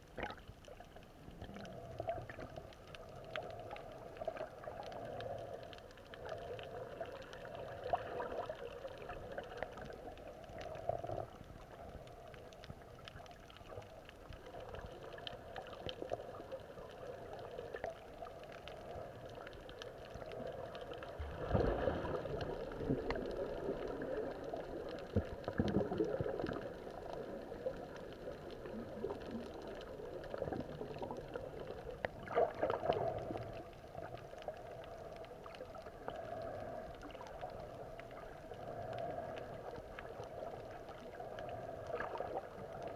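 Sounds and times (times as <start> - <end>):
muffled underwater gurgling: 0.0 - 42.9.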